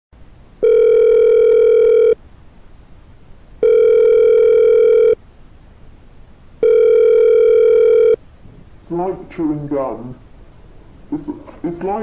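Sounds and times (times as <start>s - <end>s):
telephone line beep: 0.6s - 2.2s, 3.6s - 5.2s, 6.6s - 8.2s.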